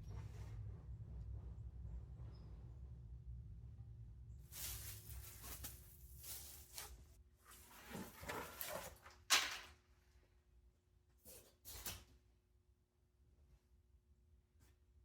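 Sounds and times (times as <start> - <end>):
cardboard rustling and scraping: 4.5 - 9.3.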